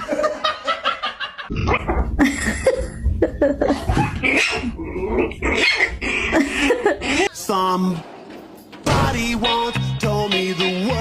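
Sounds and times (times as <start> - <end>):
people laughing: 0.0 - 1.5, 6.3 - 7.3.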